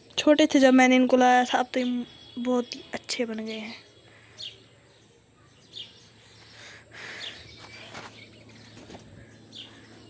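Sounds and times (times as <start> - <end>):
faint outdoor background noise: 0.0 - 10.0
brief rustle: 7.6 - 9.2.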